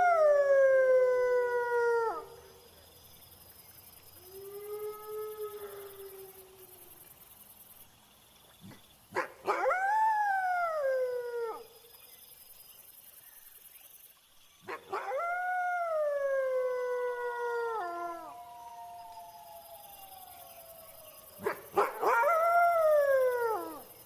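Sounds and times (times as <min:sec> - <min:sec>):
crickets chirring: 0:00.0 - 0:24.0
wolf howling: 0:14.9 - 0:23.9.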